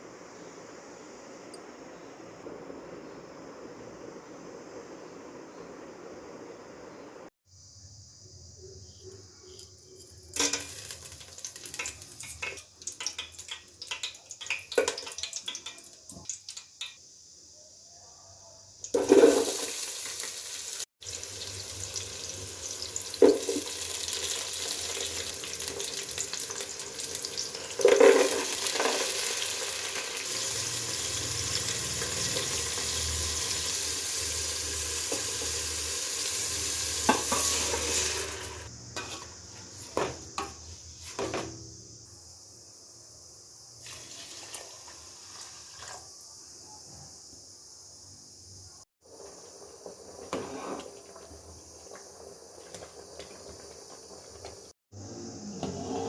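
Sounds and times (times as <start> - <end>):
food sizzling in a pan: 10.0 - 17.9, 18.7 - 41.6, 43.4 - 46.6, 47.9 - 54.8.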